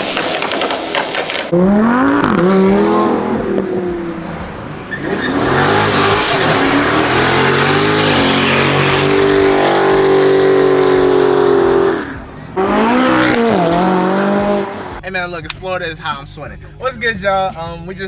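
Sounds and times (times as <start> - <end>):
car engine revving: 0.8 - 15.0.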